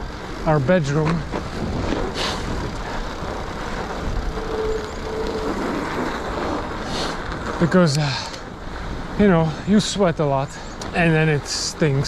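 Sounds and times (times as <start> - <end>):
bike tyres rumbling on snow: 0.0 - 12.0
wind on microphone: 1.2 - 7.8.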